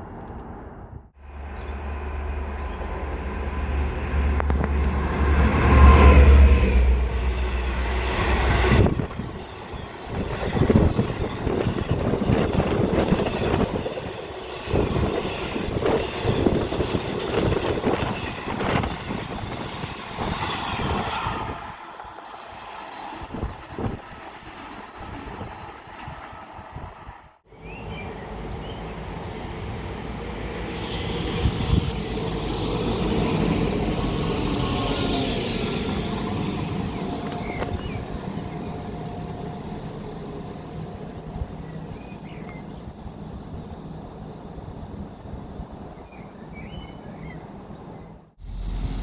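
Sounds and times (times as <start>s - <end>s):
diesel train rumbling past: 0.0s - 49.0s.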